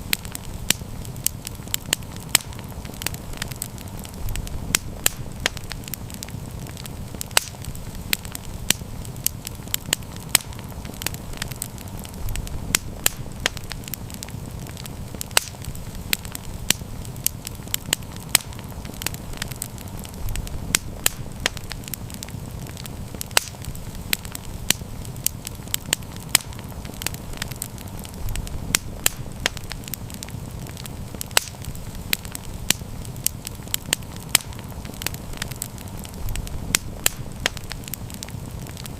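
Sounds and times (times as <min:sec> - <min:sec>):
campfire crackling and popping: 0:00.0 - 0:38.9.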